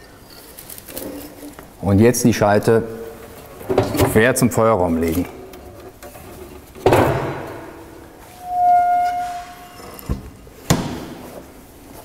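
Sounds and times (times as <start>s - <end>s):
whistle-like tone: 8.4s - 9.8s.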